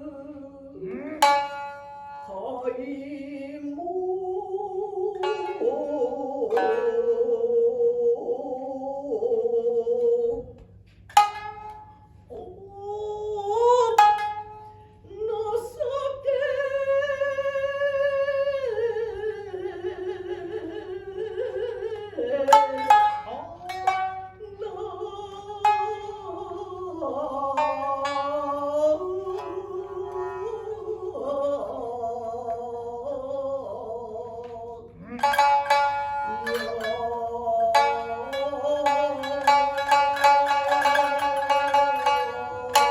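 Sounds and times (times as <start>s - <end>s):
wavering melismatic chanting: 0.0s - 42.9s
shamisen plucks: 1.2s - 3.7s, 5.0s - 7.9s, 11.1s - 12.6s, 13.2s - 17.5s, 21.4s - 33.0s, 34.4s - 42.9s.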